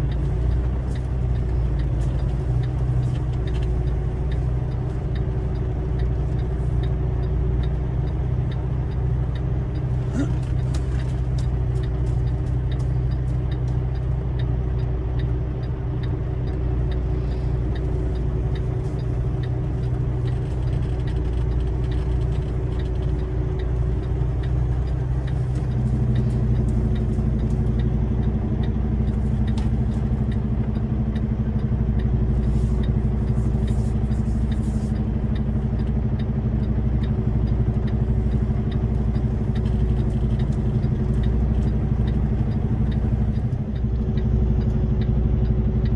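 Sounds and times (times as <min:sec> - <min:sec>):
truck diesel engine running: 0:00.0 - 0:45.9
light clicks and rattles: 0:16.4 - 0:27.9.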